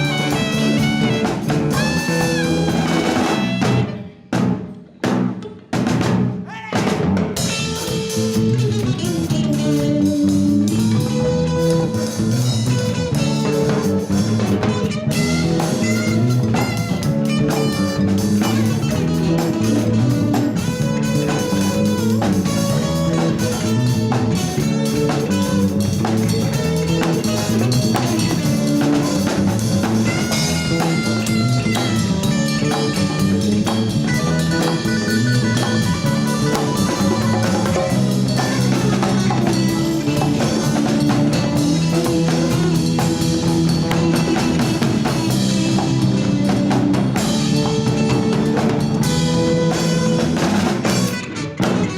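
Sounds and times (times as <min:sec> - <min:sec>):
latin fusion band playing: 0:00.0 - 0:51.9.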